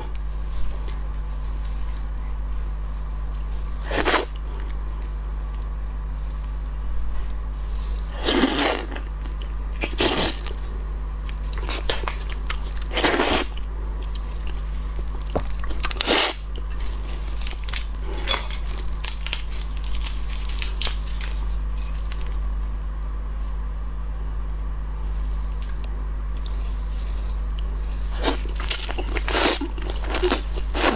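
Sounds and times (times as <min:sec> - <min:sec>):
steady low hum: 0:00.0 - 0:30.9
shellfish shells crunching: 0:14.1 - 0:22.4.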